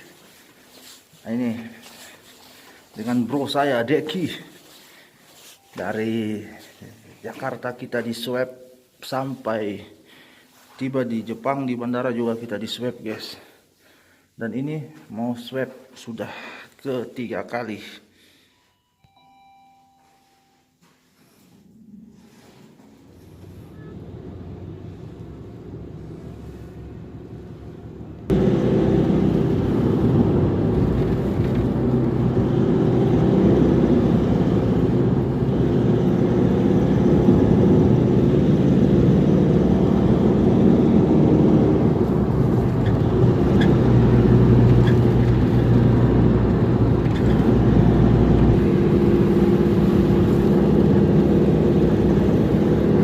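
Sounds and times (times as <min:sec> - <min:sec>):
vehicle engine rumble: 0:22.9 - 0:53.0.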